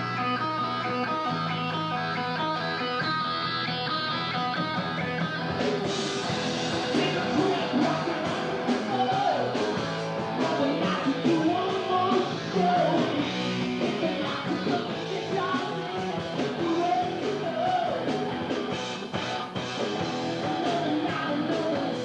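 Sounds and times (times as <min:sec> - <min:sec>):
electric guitar: 0:00.0 - 0:22.0
rock band song: 0:00.0 - 0:22.0
person singing: 0:06.5 - 0:18.4, 0:20.2 - 0:22.0.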